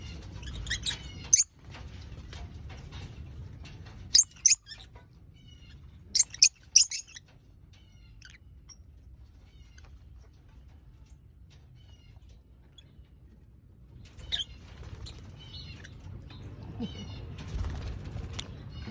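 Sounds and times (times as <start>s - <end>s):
lovebirds chirping shrilly: 0.0s - 1.5s, 4.1s - 7.2s, 14.1s - 16.0s.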